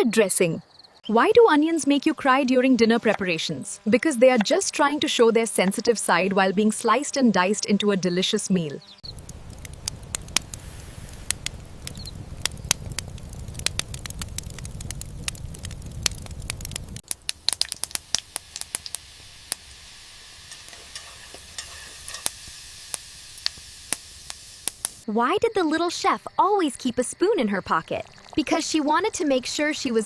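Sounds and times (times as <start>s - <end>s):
food frying with crackles and pops: 9.1s - 25.0s
high sizzling hiss: 10.2s - 12.5s, 17.0s - 25.0s.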